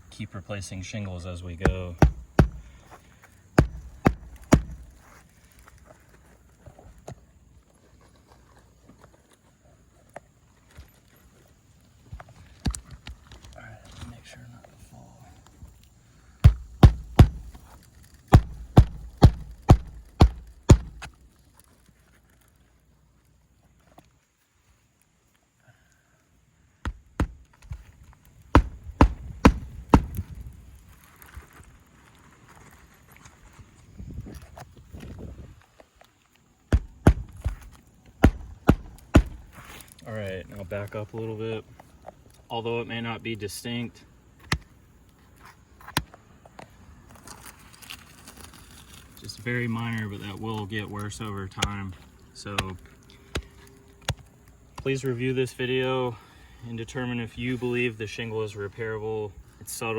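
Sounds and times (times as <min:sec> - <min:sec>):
taps and scuffs on shingles: 0:01.4 - 0:07.2, 0:16.4 - 0:21.5, 0:26.8 - 0:31.7, 0:36.6 - 0:40.0, 0:44.4 - 0:55.2
hammer striking nail: 0:01.6 - 0:02.7, 0:03.6 - 0:05.0, 0:16.4 - 0:17.6, 0:18.3 - 0:21.1, 0:26.8 - 0:27.5, 0:28.5 - 0:30.2, 0:36.7 - 0:39.5.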